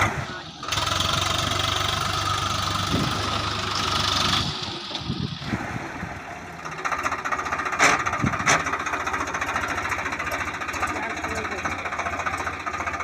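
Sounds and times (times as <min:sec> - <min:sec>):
diesel tractor engine running: 0:00.0 - 0:13.0
fast rhythmic clatter: 0:08.5 - 0:13.0.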